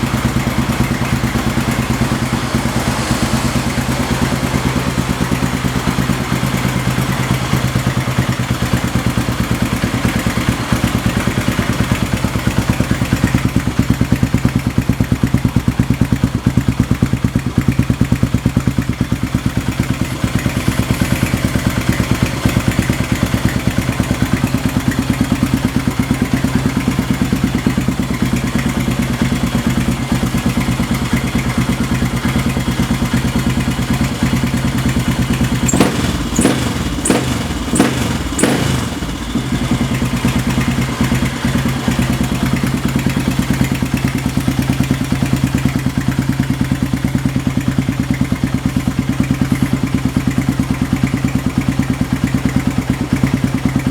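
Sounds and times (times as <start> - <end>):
motorcycle engine idling: 0.0 - 53.9
sharp exhaust cracks: 32.6 - 46.6.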